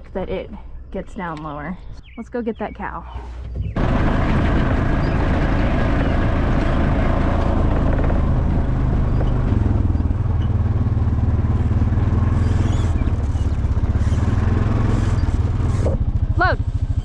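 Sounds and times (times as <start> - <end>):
small vehicle engine running: 3.7 - 17.0.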